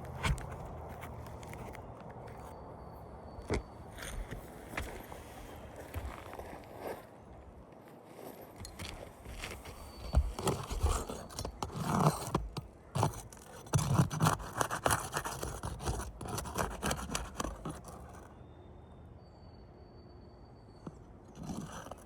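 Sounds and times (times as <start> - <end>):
scraping on roof shingles: 9.1 - 18.3.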